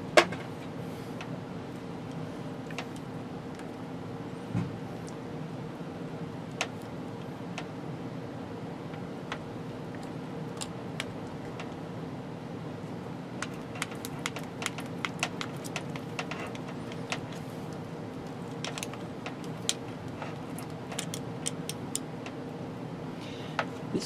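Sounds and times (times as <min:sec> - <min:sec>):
steady hum: 0:00.0 - 0:24.0
tools and wire clicking: 0:13.4 - 0:22.4.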